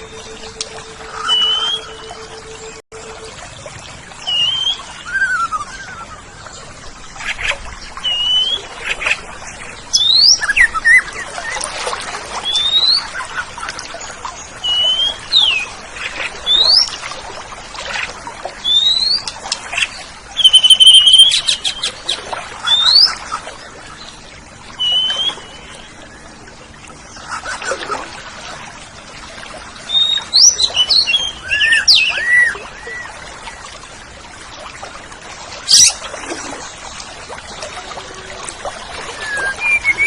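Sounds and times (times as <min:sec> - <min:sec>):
bird singing whistled notes: 0:00.0 - 0:02.8, 0:04.3 - 0:06.2, 0:20.4 - 0:21.8, 0:39.2 - 0:40.0.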